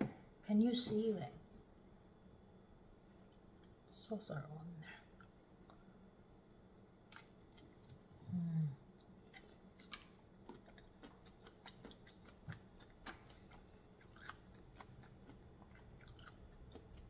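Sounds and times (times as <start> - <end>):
person chewing shrimp: 8.9 - 17.0.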